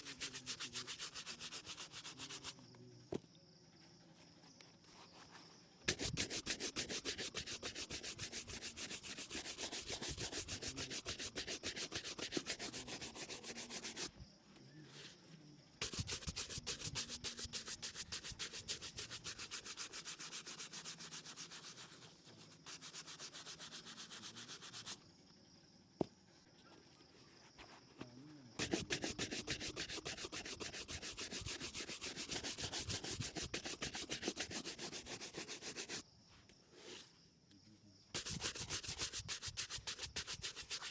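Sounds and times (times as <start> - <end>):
rubbing on a leather shoe: 0.0 - 2.7, 4.8 - 14.1, 15.8 - 25.0, 28.6 - 36.0, 38.1 - 40.9.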